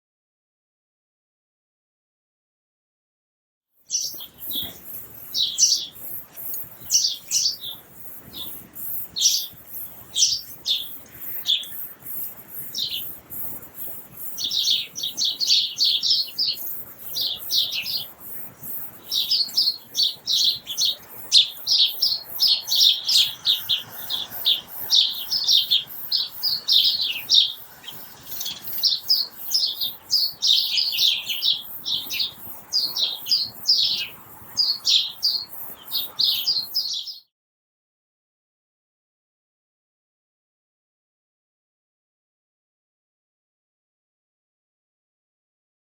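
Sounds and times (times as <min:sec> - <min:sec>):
small birds chirping: 0:03.8 - 0:37.3.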